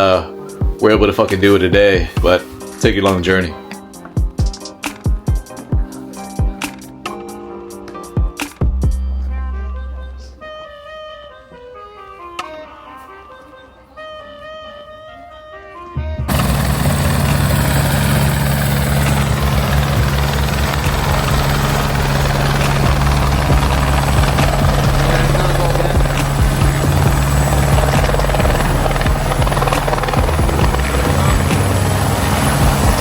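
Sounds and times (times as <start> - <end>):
helicopter engine and rotor drone: 16.3 - 33.0
high whine: 16.3 - 33.0.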